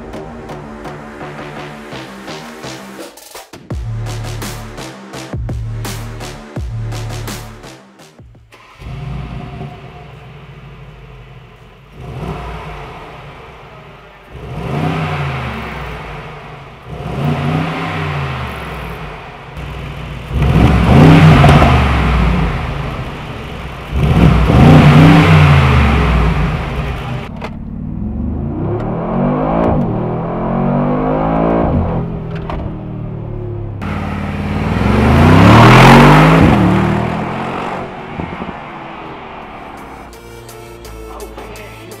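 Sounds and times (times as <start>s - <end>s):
car engine revving: 8.4s - 40.5s.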